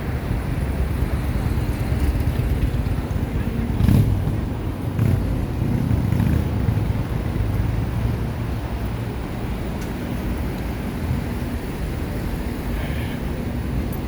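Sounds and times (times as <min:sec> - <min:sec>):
road traffic rumble: 0:00.0 - 0:14.0
vehicle passing loudly: 0:00.5 - 0:08.8.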